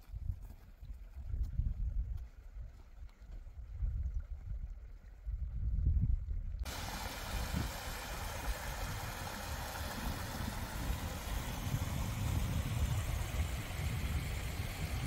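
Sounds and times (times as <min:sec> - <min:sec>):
wind rumble on microphone: 0:00.0 - 0:15.0
flowing mountain water: 0:06.6 - 0:15.0.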